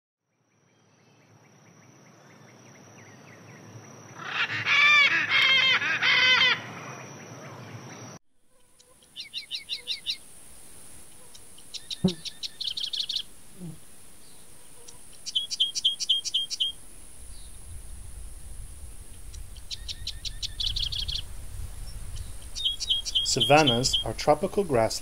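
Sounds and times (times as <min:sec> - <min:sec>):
harsh bird calls: 0:04.1 - 0:07.8, 0:08.6 - 0:10.2, 0:11.2 - 0:16.8, 0:19.6 - 0:21.2, 0:22.2 - 0:25.0
short high bird chirps: 0:11.7 - 0:13.8, 0:15.2 - 0:16.8, 0:22.1 - 0:24.2.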